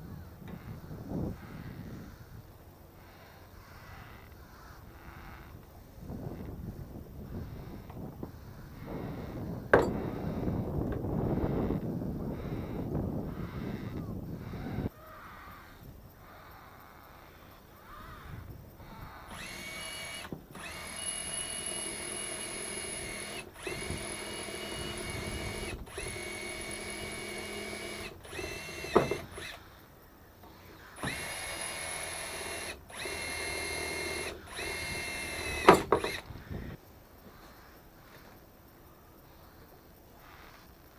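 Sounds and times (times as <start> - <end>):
power drill whining: 7.3 - 14.9, 18.8 - 36.7.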